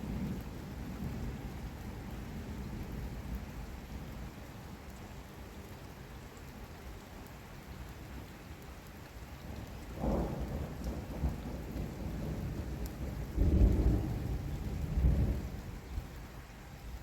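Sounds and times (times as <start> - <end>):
heavy rain falling: 0.0 - 17.0
thunder rumbling: 10.0 - 15.8.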